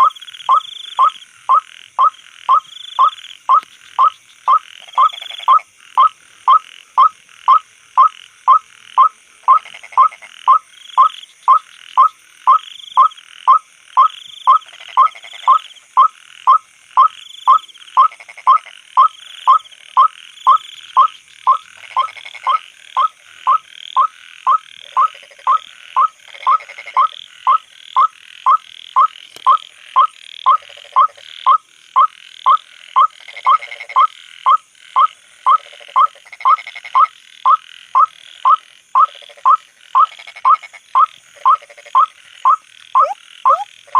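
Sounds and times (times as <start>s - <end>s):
night insect chorus: 0.0s - 43.9s
waterhen repeated call: 35.5s - 43.9s.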